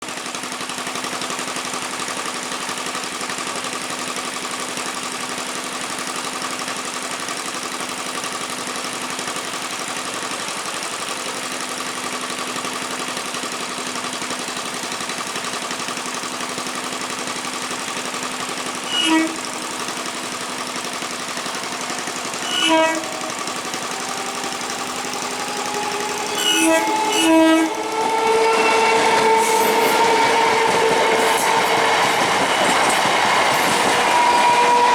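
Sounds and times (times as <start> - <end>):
train running: 8.8 - 34.9
train horn blasts: 18.8 - 20.6, 21.3 - 33.0, 33.8 - 34.9.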